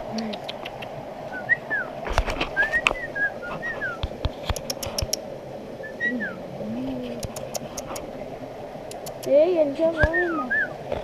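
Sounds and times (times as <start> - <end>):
shallow stream murmuring: 0.0 - 11.0
bird whistling: 1.3 - 1.9, 2.6 - 4.0, 5.8 - 6.4, 10.1 - 10.8.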